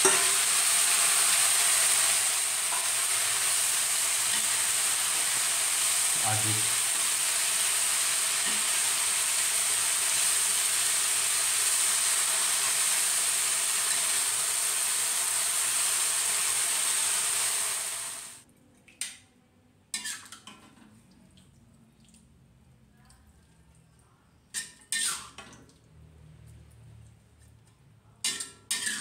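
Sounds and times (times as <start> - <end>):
leaves sizzling in a wok: 0.0 - 18.4.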